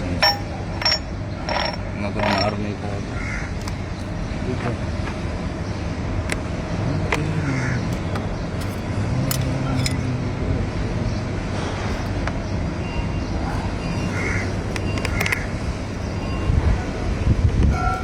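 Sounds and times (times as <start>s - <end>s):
sharp metallic clicks: 0.0s - 2.6s
vehicle engine rumbling: 0.0s - 18.0s.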